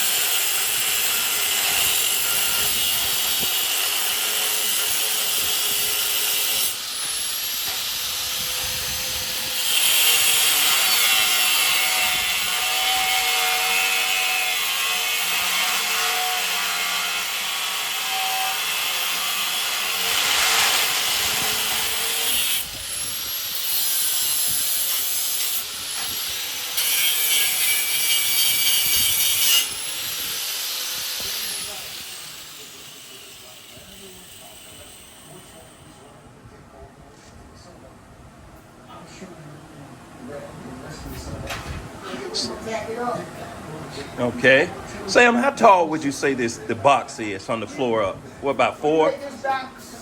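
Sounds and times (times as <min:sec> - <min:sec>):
angle grinder grinding steel: 0:00.0 - 0:35.7.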